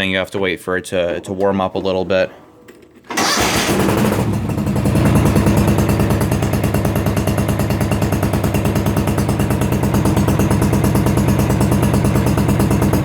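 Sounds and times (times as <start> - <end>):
small petrol engine running: 3.1 - 13.0.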